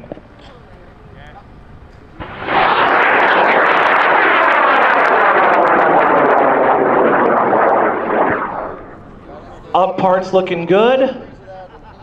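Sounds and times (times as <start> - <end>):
rocket motor crackling roar: 1.2 - 10.5.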